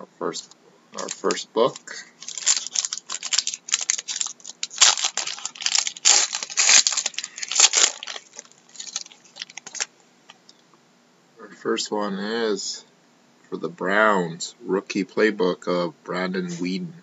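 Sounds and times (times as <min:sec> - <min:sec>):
foil wrapper tearing and crinkling: 0:01.0 - 0:09.9.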